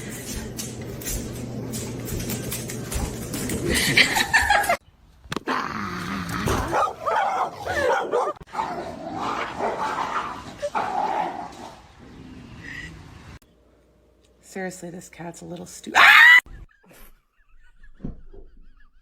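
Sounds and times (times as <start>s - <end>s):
dog barking and whining: 6.4s - 11.5s, 16.0s - 16.6s.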